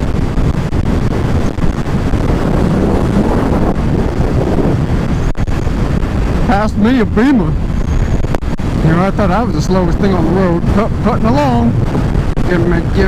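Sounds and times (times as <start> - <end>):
vehicle road noise: 0.0 - 13.0
wind buffeting microphone: 0.0 - 13.0.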